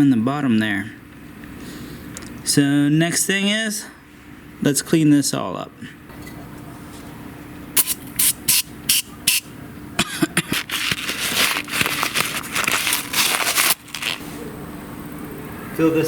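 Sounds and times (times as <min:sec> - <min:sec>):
cleaner spray hissing: 0:07.8 - 0:09.5.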